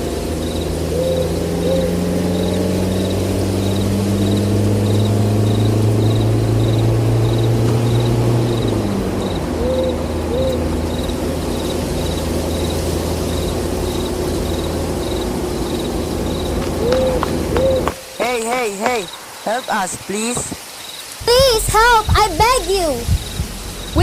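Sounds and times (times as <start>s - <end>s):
crickets chirping: 0.0s - 24.0s
owl hooting: 0.5s - 11.7s, 14.0s - 19.5s.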